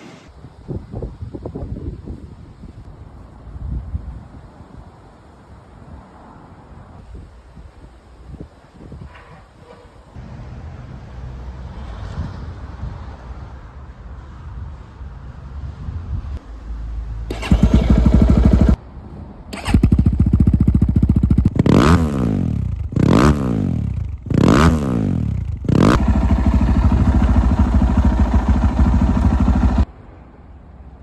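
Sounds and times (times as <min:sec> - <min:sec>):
motocross bike engine: 0:17.3 - 0:18.8, 0:19.6 - 0:29.8.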